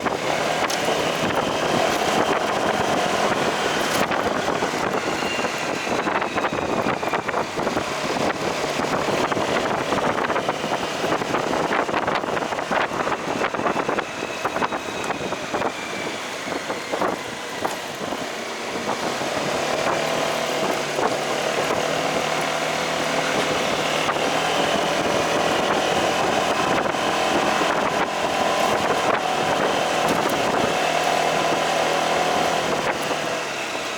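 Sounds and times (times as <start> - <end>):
motorcycle engine running: 0.0 - 33.9
road and wind noise: 0.0 - 33.9.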